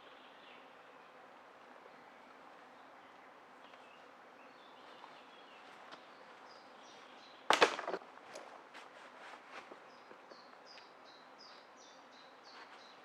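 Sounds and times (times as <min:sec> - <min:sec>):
loud crunching crack: 0:07.5 - 0:08.0.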